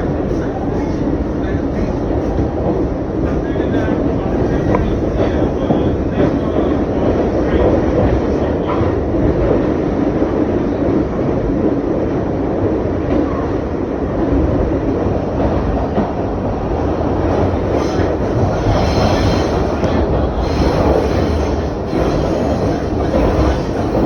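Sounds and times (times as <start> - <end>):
subway wheels rumbling on rails: 0.0 - 24.0
high wheel squeal: 17.6 - 24.0.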